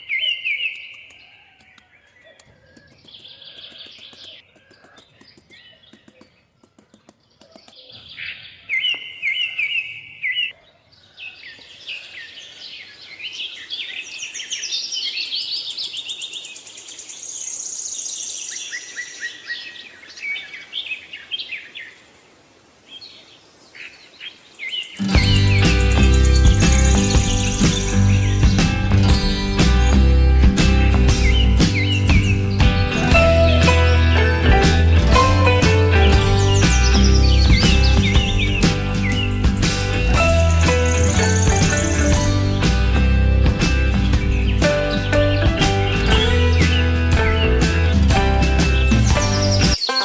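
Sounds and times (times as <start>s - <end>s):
birds chirping and singing: 0.0s - 22.0s, 22.9s - 50.0s.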